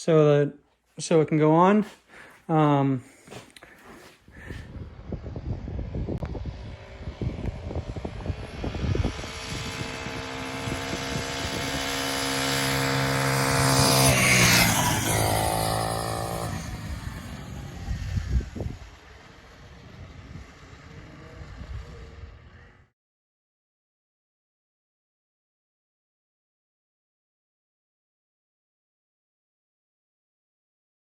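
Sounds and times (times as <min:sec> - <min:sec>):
wind rumble on microphone: 0:04.2 - 0:22.9
minibike engine at high revs: 0:04.4 - 0:22.9.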